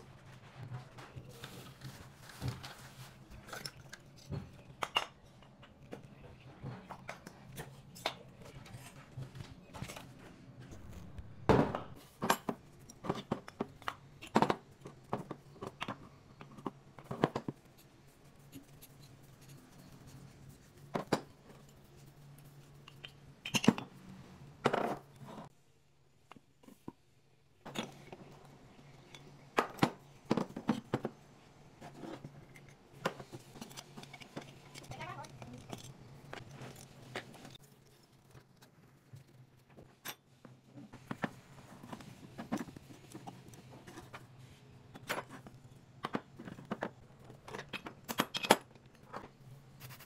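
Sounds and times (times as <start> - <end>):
hard objects clicking and scraping: 31.8 - 40.3.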